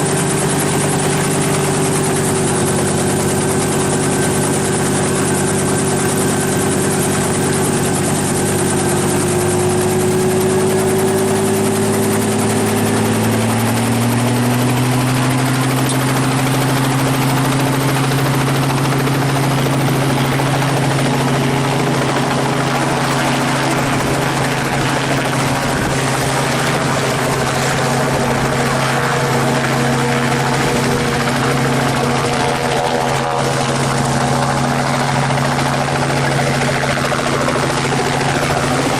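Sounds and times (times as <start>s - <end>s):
helicopter engine and rotor: 0.0s - 38.9s.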